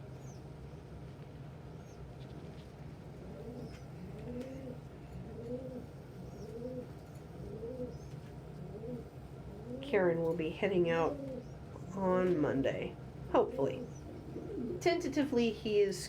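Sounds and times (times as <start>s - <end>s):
pigeon cooing: 3.1s - 10.0s, 10.9s - 11.9s, 13.5s - 15.0s.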